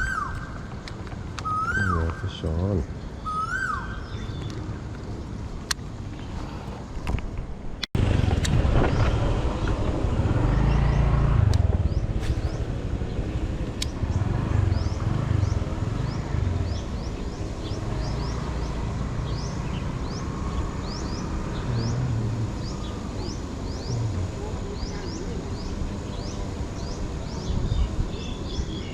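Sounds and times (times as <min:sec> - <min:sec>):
road traffic rumble: 0:00.0 - 0:28.9
bird chirps: 0:01.4 - 0:05.4, 0:11.8 - 0:28.9.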